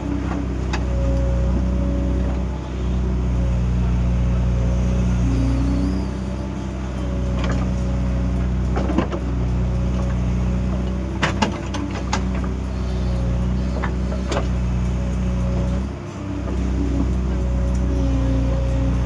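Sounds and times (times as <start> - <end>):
excavator diesel engine: 0.0 - 19.0.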